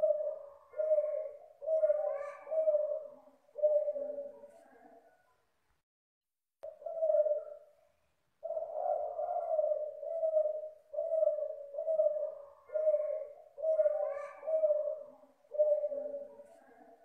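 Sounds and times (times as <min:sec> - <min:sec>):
dove cooing: 0:00.0 - 0:05.2, 0:06.6 - 0:17.0.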